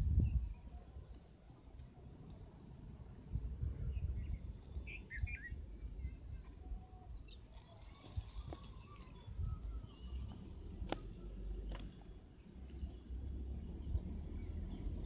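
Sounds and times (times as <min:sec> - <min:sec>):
steady low rumble: 0:00.0 - 0:00.6
bird chirping and warbling: 0:04.0 - 0:11.7.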